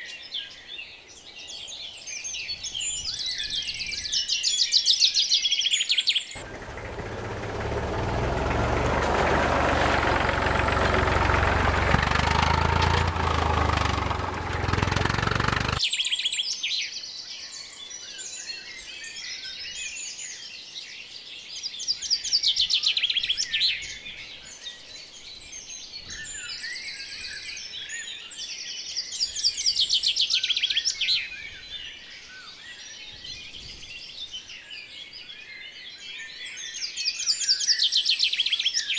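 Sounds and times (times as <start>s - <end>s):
birds chirping: 6.4s - 15.8s.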